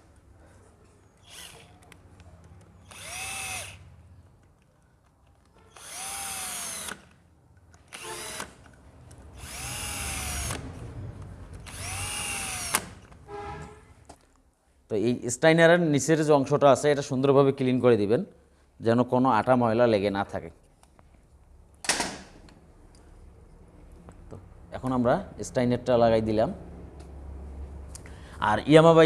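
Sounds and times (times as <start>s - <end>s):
electric drill-driver bursts: 1.2s - 1.9s, 2.8s - 3.9s, 5.7s - 7.1s, 7.9s - 8.6s, 9.3s - 10.7s, 11.6s - 13.0s.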